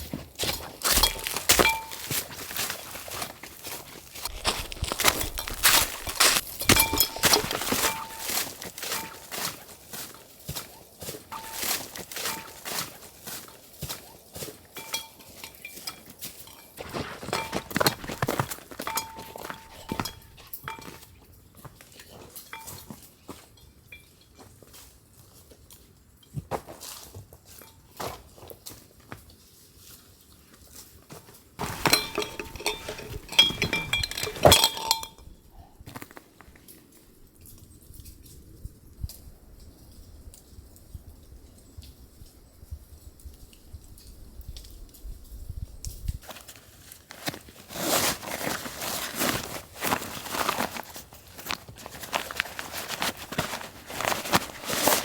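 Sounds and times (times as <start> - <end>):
footsteps on forest floor: 0.0 - 21.0, 31.6 - 35.2, 46.2 - 55.0
metal cookware clinking and rattling: 0.4 - 9.6, 11.3 - 13.0, 14.8 - 21.0, 31.6 - 35.3.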